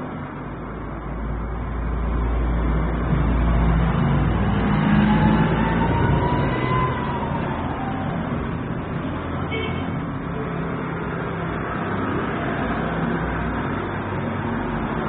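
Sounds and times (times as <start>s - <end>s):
vehicle engine passing by: 1.6s - 9.4s.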